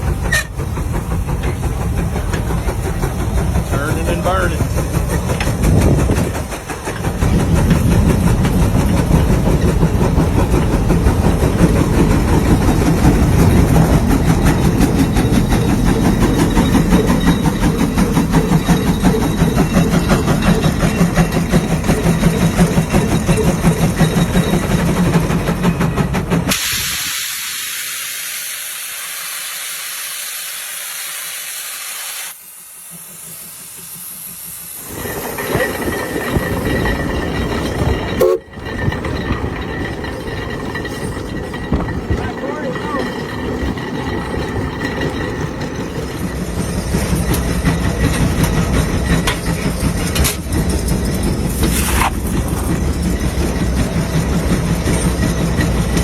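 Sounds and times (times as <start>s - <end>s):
steam traction engine running: 0.0s - 56.0s
hiss of escaping steam: 26.4s - 36.6s.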